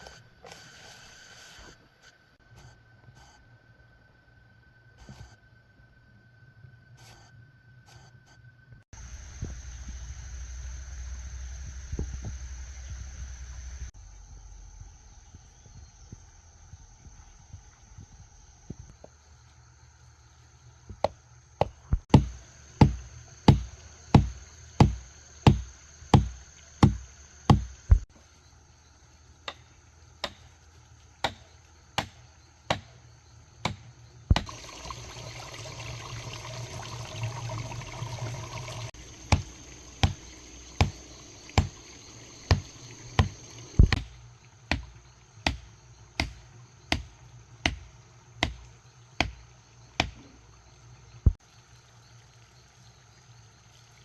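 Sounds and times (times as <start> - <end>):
insects buzzing: 8.9 - 54.0.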